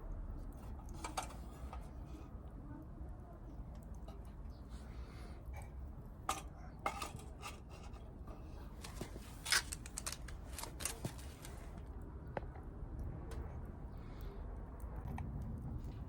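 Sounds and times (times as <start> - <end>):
small hard objects clicking: 8.8 - 11.6.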